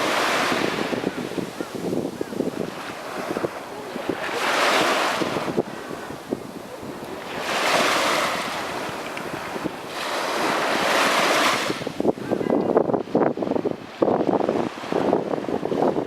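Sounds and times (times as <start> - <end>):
waves washing up a beach: 0.0 - 16.0
wind gusting on microphone: 0.0 - 16.0.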